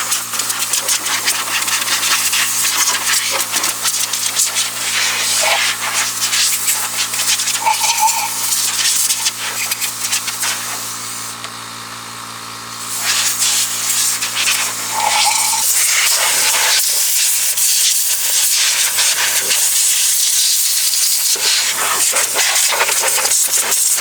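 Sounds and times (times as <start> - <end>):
hissing jet of air: 7.5 - 9.0, 14.6 - 16.8.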